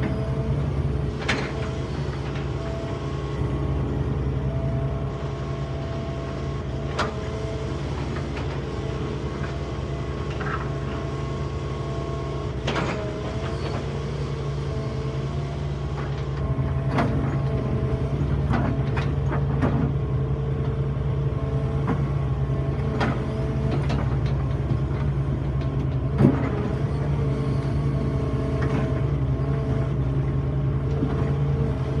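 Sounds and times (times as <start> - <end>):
hydraulic whine: 0.0 - 19.9
excavator diesel engine: 0.0 - 32.0.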